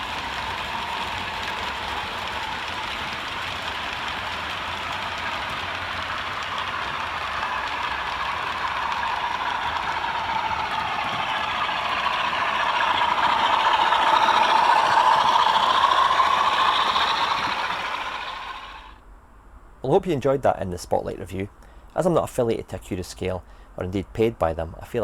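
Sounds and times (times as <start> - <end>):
model train wheels on rails: 0.0 - 19.0.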